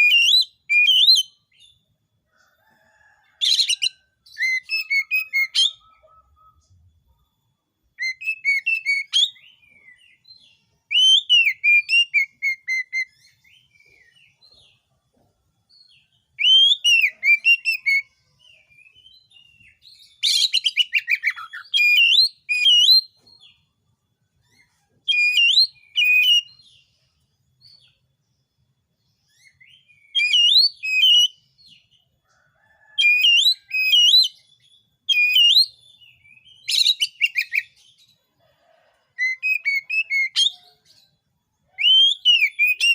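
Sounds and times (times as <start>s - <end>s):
bird singing whistled phrases: 0.0s - 1.7s, 3.6s - 6.8s, 8.0s - 10.0s, 10.9s - 13.7s, 16.4s - 18.1s, 18.7s - 23.1s, 25.0s - 26.6s, 29.4s - 31.4s, 33.0s - 37.8s, 41.8s - 42.9s.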